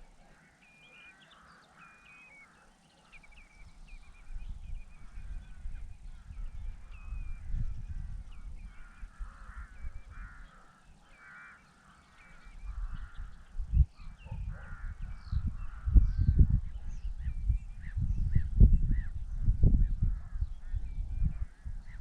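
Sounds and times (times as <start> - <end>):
birds rasping calls: 0.0 - 17.2
birds chirping: 0.0 - 22.0
wind on microphone: 3.3 - 10.7, 12.2 - 22.0.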